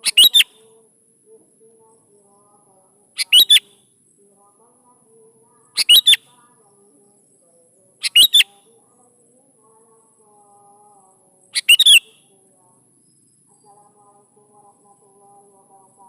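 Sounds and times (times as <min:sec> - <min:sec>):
bulbul calling: 0:00.0 - 0:00.6, 0:03.2 - 0:03.8, 0:05.8 - 0:06.2, 0:08.0 - 0:08.6, 0:11.6 - 0:12.2.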